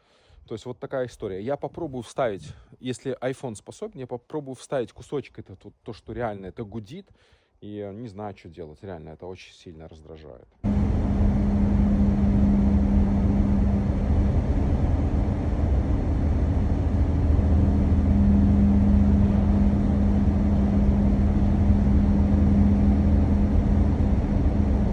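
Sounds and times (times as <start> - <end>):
road rumble: 10.7 - 24.9
tyres humming: 10.7 - 24.9.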